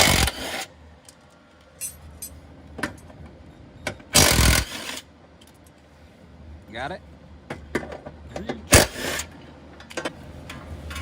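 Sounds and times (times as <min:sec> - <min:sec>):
loud burst of noise: 0:00.0 - 0:00.7, 0:04.2 - 0:05.0, 0:08.7 - 0:09.3
metal tools clinking: 0:01.8 - 0:03.1, 0:09.8 - 0:11.0.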